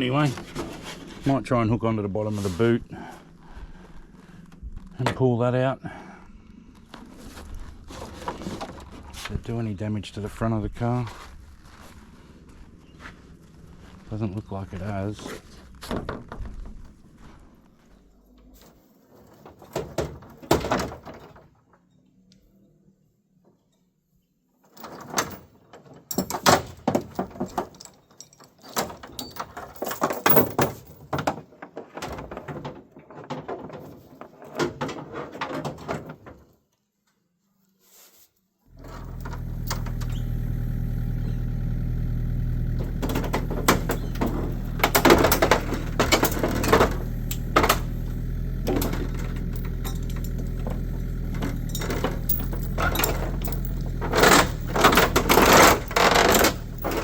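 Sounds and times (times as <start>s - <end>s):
metal clanks and knocks: 24.8s - 36.4s, 38.7s - 57.0s
excavator engine running: 38.7s - 57.0s.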